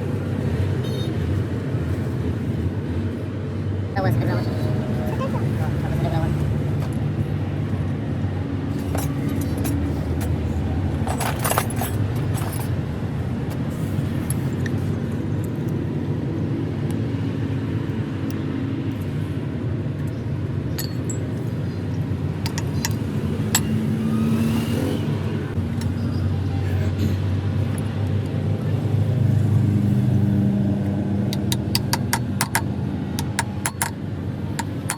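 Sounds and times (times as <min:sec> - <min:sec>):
engine running at low pitch: 0:00.0 - 0:34.9
metallic clinks and knocks: 0:08.7 - 0:10.4, 0:11.0 - 0:12.8, 0:20.7 - 0:23.8, 0:31.3 - 0:34.9.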